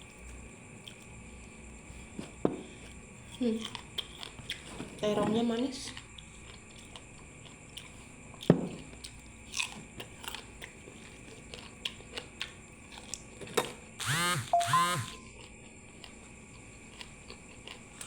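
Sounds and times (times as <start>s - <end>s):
person chewing crunchy food: 0.0s - 4.9s, 5.9s - 18.0s
pitch-bending tone: 14.3s - 15.2s.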